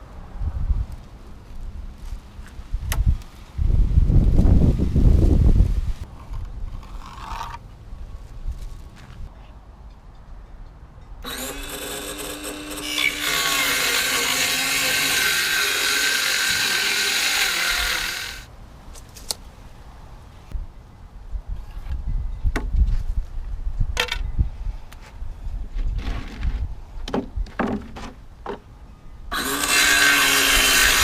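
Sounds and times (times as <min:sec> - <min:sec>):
power saw cutting board: 0:11.2 - 0:18.5, 0:29.3 - 0:31.0
wood handling thuds: 0:26.0 - 0:28.6.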